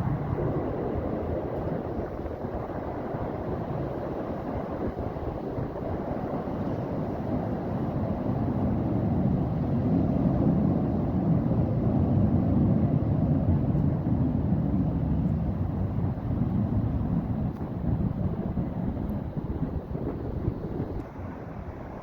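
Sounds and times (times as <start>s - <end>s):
distant jet engines rumbling: 0.0s - 22.0s.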